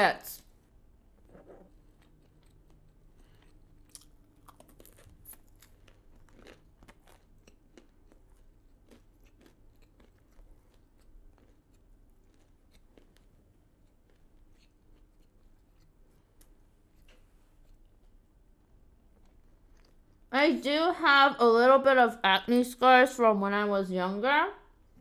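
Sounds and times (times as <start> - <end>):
person chewing: 1.5 - 18.3, 19.2 - 20.3.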